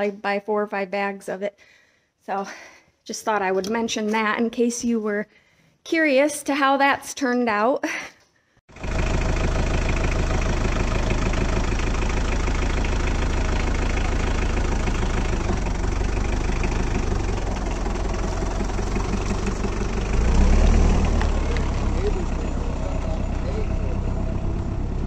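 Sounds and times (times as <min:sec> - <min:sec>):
diesel tractor engine idling: 0:08.7 - 0:25.0.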